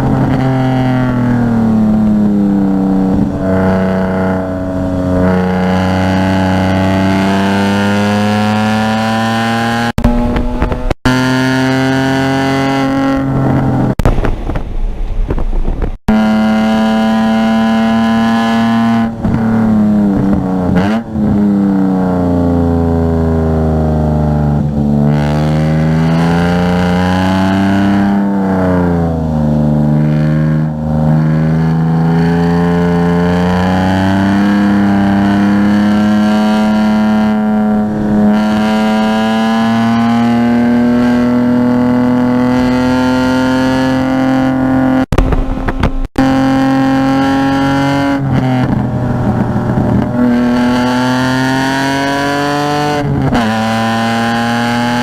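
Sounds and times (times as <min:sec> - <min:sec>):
car engine revving on track: 0:00.0 - 0:14.1, 0:16.1 - 0:55.0
rough noise: 0:00.0 - 0:55.0.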